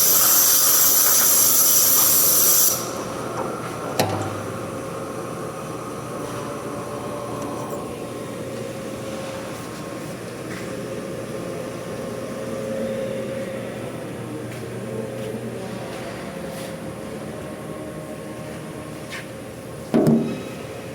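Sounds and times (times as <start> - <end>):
cutting hiss: 0.0 - 3.1.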